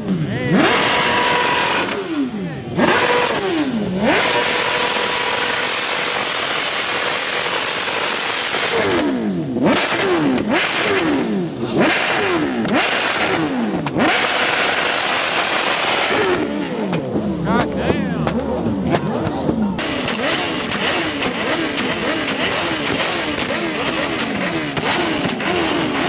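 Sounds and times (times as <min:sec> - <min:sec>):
engine revving: 0:00.0 - 0:26.0.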